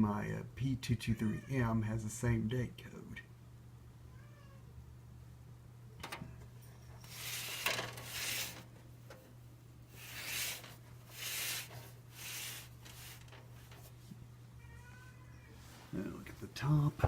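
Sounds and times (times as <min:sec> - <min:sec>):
fan housing rubbing and scraping: 0:06.9 - 0:14.1.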